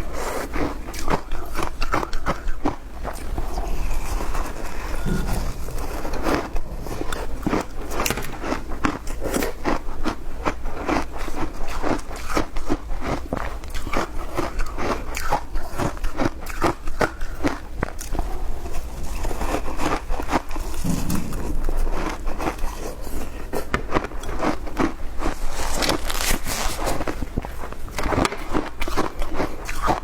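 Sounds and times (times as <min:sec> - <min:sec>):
crunching frozen ice: 0:24.2 - 0:30.0.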